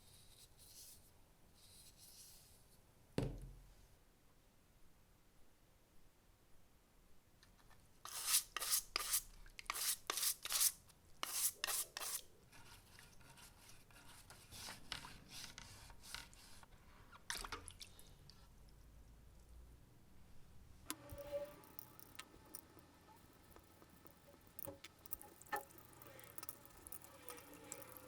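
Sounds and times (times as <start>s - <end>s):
hand scraping strokes: 8.1s - 16.7s.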